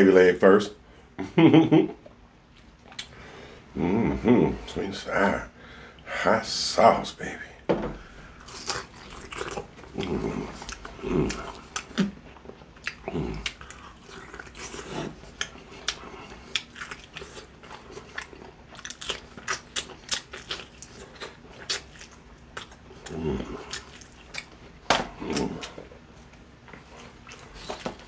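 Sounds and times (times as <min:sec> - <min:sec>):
crunchy chewing of fried chicken: 0:08.2 - 0:28.0.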